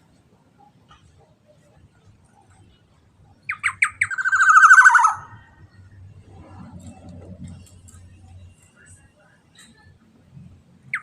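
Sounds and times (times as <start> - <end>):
oriole calling: 3.5 - 5.6
faint low rumble: 4.7 - 10.9.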